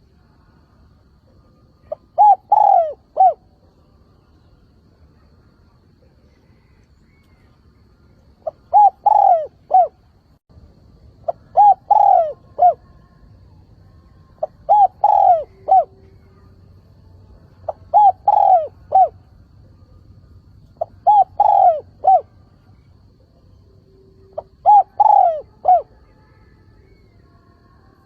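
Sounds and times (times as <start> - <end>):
dove cooing: 1.8 - 3.5, 8.4 - 10.0, 11.2 - 13.0, 14.4 - 16.5, 17.6 - 19.2, 20.7 - 22.5, 24.2 - 26.0.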